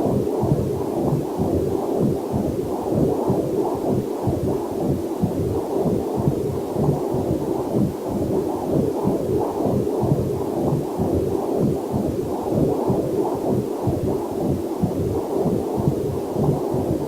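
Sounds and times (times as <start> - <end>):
fetal heartbeat on doppler monitor: 0.0 - 17.0.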